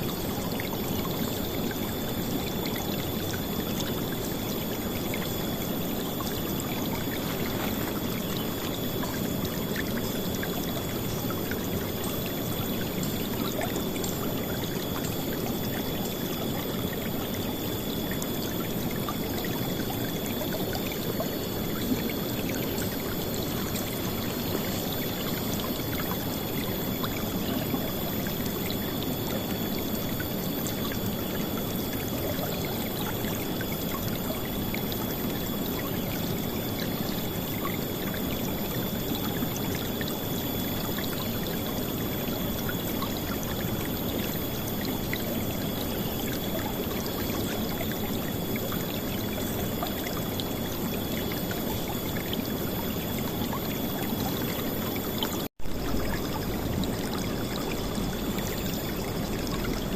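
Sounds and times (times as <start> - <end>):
steady high-pitched tone: 0.0 - 59.9.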